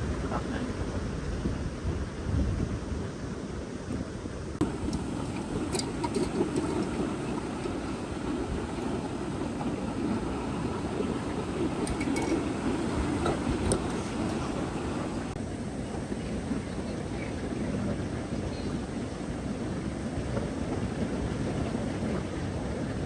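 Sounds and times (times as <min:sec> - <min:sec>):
wind: 0:00.0 - 0:23.0
ocean surf: 0:04.6 - 0:18.4.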